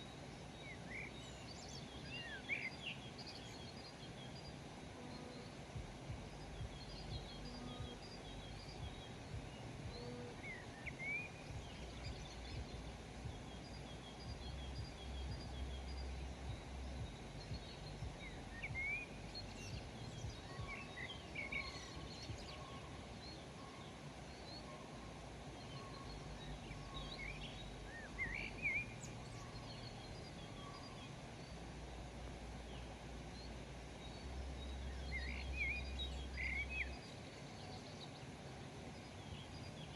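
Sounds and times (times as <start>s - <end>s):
low background rumble: 0.0s - 39.9s
small birds chirping: 0.0s - 39.9s.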